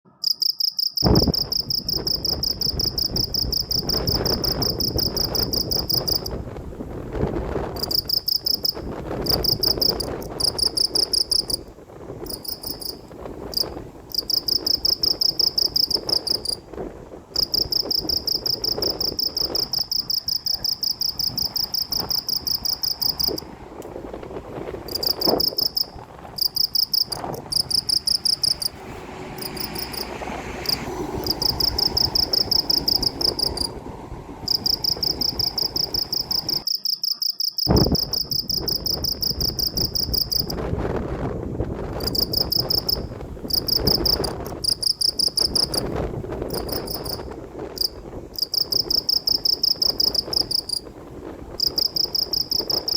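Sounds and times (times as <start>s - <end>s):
insect trilling: 25.0s - 28.7s.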